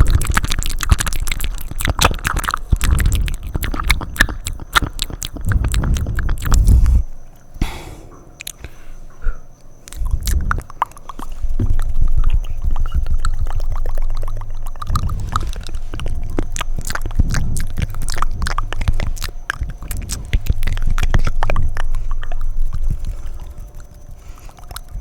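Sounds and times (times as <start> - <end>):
wet tongue clicks and smacks: 0.0 - 7.5, 8.3 - 8.8, 9.5 - 25.0
short breath: 6.5 - 9.5.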